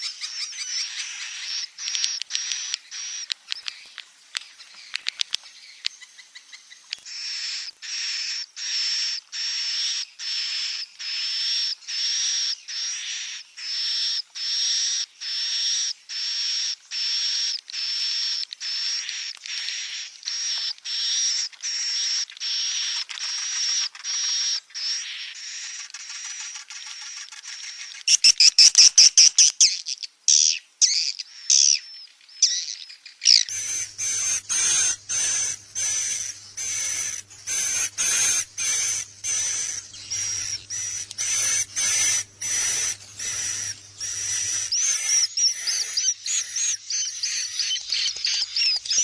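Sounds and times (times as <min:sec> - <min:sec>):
faint clicking chirps: 0:00.0 - 0:07.8, 0:16.9 - 0:24.6, 0:31.1 - 0:49.0
swiftlet chick hissing buzzes: 0:33.5 - 0:46.8.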